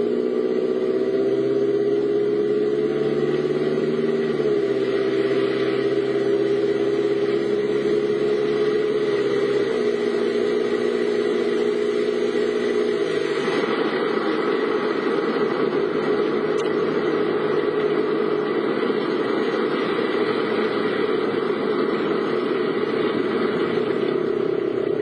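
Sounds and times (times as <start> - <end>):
car engine running: 0.0 - 25.0.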